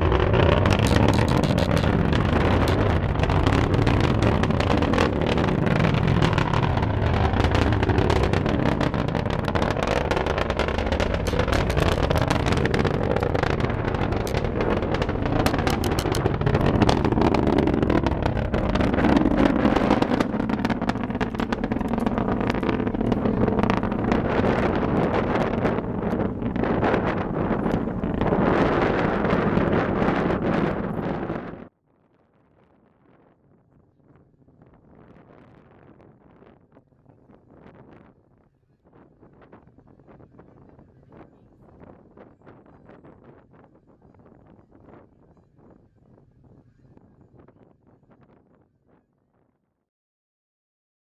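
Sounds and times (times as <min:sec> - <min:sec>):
distant rocket roar with crackles: 0:00.0 - 0:31.7
wind buffeting microphone: 0:00.0 - 0:31.7.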